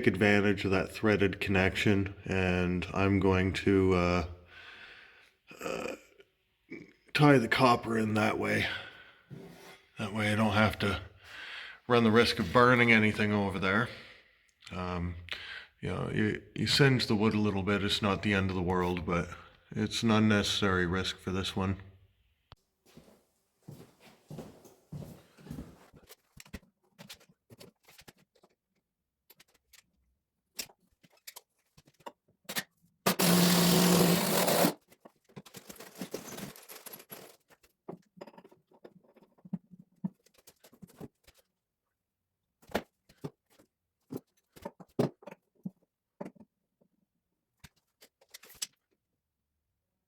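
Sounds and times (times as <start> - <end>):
loud buzzing burst: 33.1 - 34.8.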